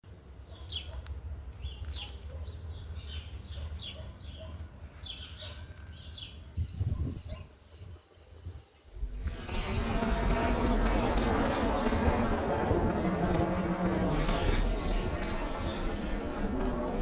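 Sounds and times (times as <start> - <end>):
small birds chirping: 0.1 - 17.0
low steady rumble: 9.0 - 17.0.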